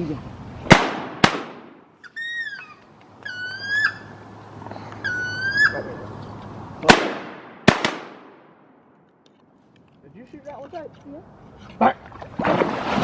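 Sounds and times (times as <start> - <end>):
shotgun shots: 0.7 - 1.8, 6.8 - 8.6
squealing duck calls: 2.0 - 4.2, 5.0 - 6.1.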